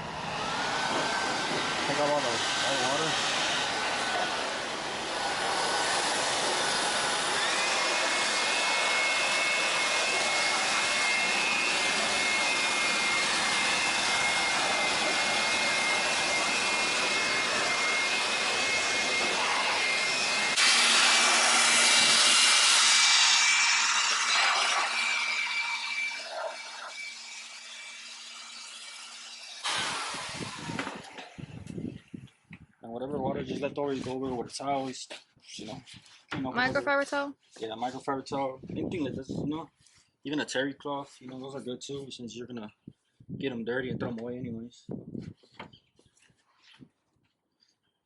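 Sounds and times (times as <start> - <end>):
electric air blower running: 0.0 - 26.6, 29.6 - 31.9.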